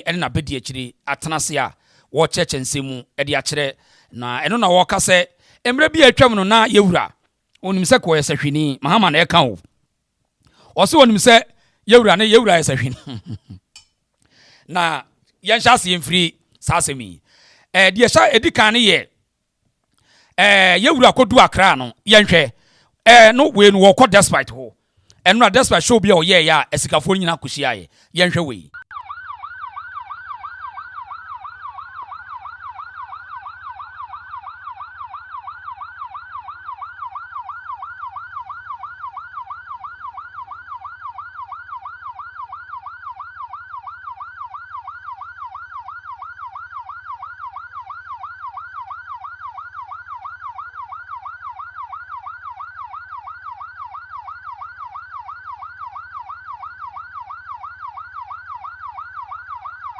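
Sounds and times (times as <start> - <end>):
electronic siren yelping: 28.7 - 59.9.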